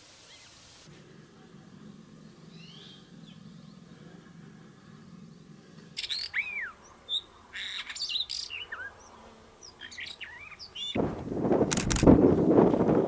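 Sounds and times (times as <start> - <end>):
bird singing whistled notes: 6.0 - 8.9
sharp clicks: 11.7 - 12.2.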